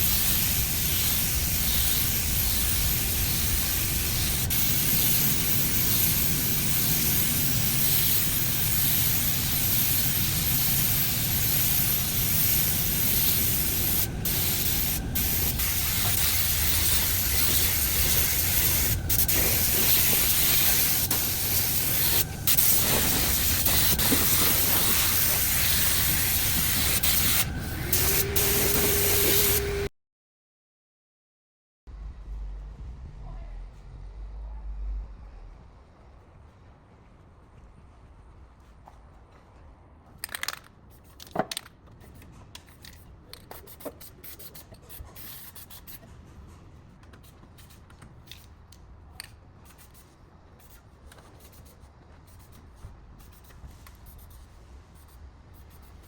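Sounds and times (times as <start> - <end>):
spray gun hissing: 0.0 - 29.9.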